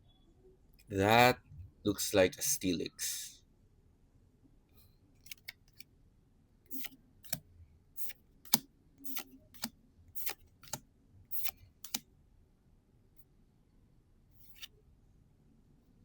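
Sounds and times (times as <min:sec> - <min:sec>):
cards swishing: 0:08.0 - 0:10.8.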